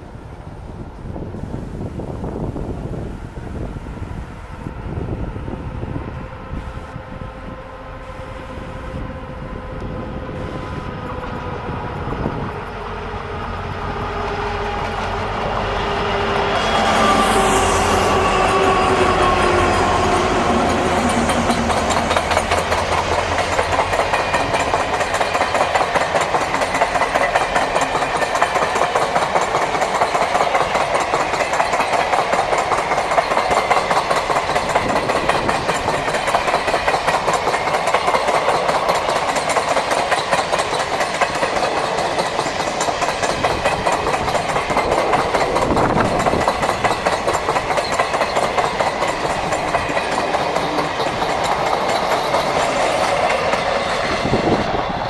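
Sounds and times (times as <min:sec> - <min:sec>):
diesel locomotive engine drone: 0:00.0 - 0:55.0
train wheels clattering over rail joints: 0:11.0 - 0:55.0.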